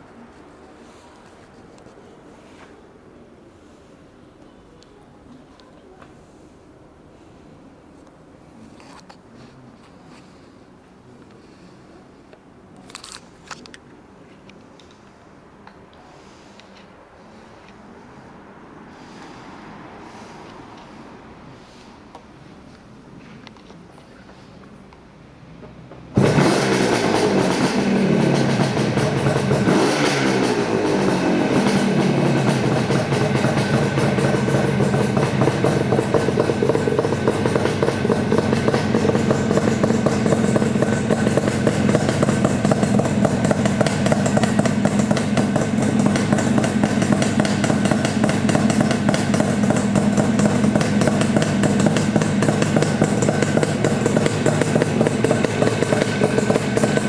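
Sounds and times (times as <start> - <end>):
motorcycle engine idling: 26.2 - 57.0.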